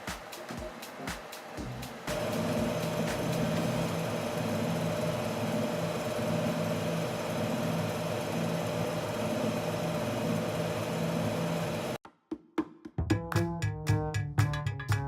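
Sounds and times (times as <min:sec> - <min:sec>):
centrifuge machine humming: 0:00.4 - 0:12.0.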